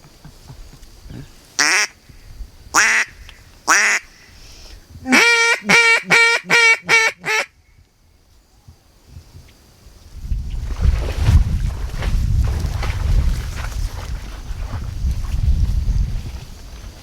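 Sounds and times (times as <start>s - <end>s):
goose call honks: 1.6s - 1.9s, 3.7s - 4.1s, 5.1s - 7.5s.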